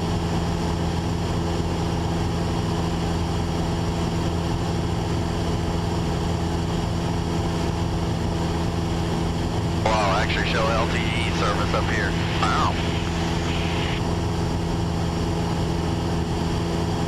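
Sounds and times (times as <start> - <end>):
airplane engine droning: 6.2 - 17.0.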